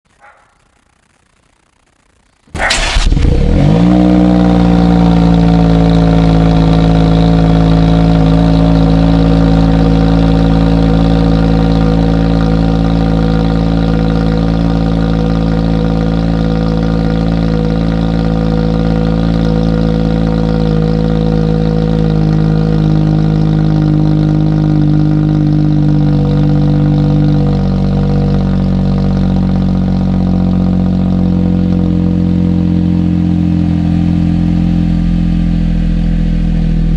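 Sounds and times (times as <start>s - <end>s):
car engine starting and idling: 2.6s - 36.9s.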